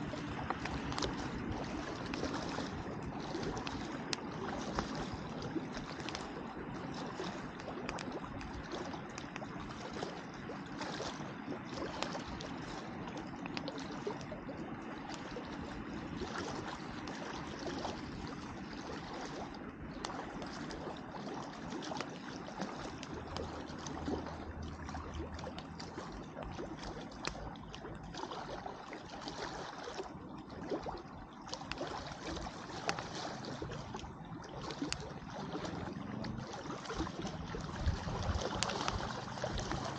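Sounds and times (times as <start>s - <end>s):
water lapping at shore: 0.0s - 39.9s
campfire crackling and popping: 0.4s - 6.8s, 7.4s - 9.5s, 35.7s - 39.9s.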